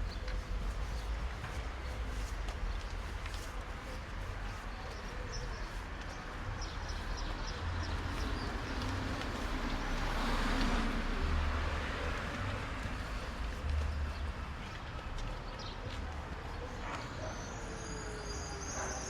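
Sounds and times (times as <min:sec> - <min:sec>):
footsteps: 0:00.0 - 0:17.8
low traffic rumble: 0:00.0 - 0:19.0
vehicle passing: 0:08.8 - 0:15.2.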